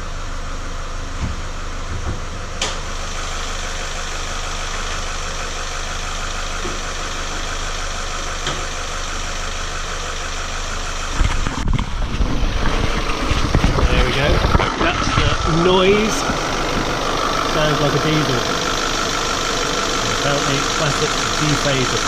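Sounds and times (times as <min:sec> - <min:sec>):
car engine idling with clatter: 0:00.0 - 0:22.0
uneven low rumbling: 0:10.4 - 0:22.0.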